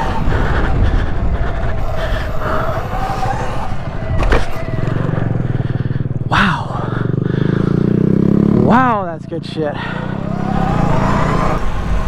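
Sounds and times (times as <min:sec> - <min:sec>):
electric motorbike motor whining: 0:00.0 - 0:06.3, 0:09.8 - 0:12.0
rushing wind: 0:00.0 - 0:12.0.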